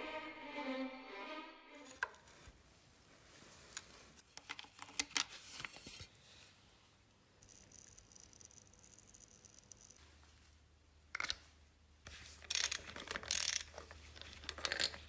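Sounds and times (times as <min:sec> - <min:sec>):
bowed string music: 0:00.0 - 0:02.3.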